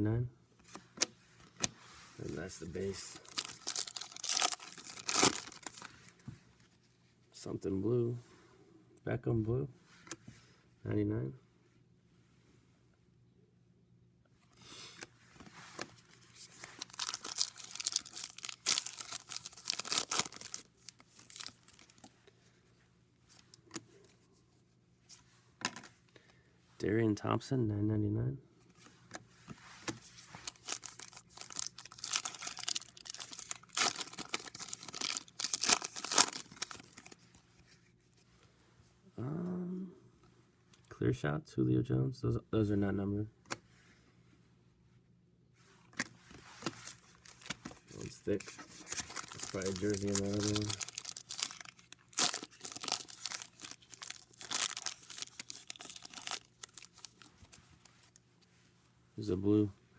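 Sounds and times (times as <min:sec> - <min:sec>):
card pack wrapper tearing and crinkling: 0:02.8 - 0:06.1, 0:16.3 - 0:22.1, 0:30.4 - 0:37.2, 0:46.7 - 0:57.3.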